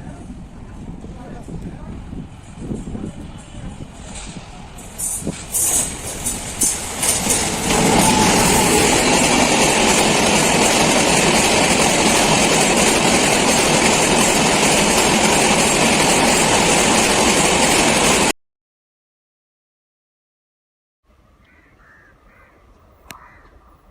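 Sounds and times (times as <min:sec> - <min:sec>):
train wheels rushing on rails: 0:00.3 - 0:18.3.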